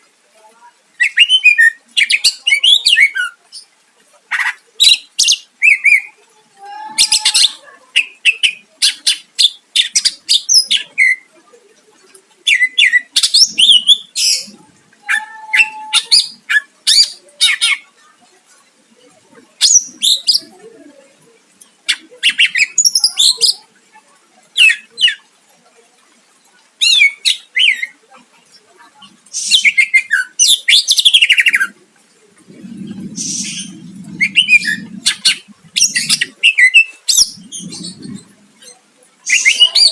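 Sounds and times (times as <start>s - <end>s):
bird singing chirps and trills: 12.4s - 18.0s, 21.6s - 23.7s, 32.5s - 39.9s
low rustling rumble: 31.8s - 36.4s, 37.2s - 38.6s.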